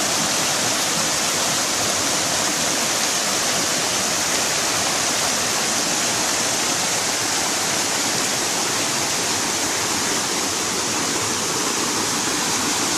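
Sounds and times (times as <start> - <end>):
stream water rushing: 0.0 - 12.9.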